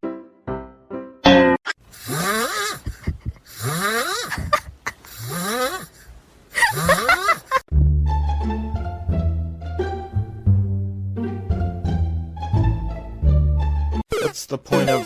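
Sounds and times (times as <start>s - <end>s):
pet snoring loudly: 2.0s - 2.8s, 3.5s - 4.4s, 5.1s - 6.0s.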